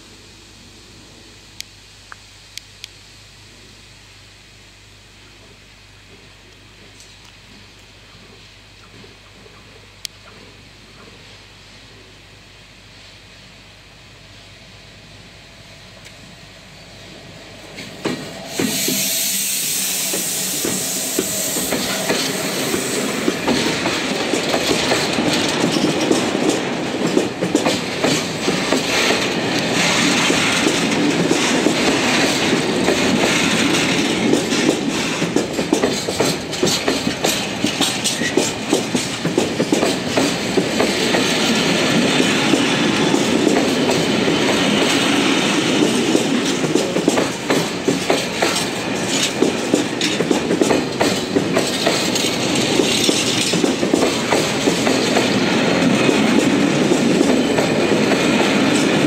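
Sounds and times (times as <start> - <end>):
electric locomotive passing: 13.4 - 59.0
wheel clicks over rails: 45.8 - 55.4.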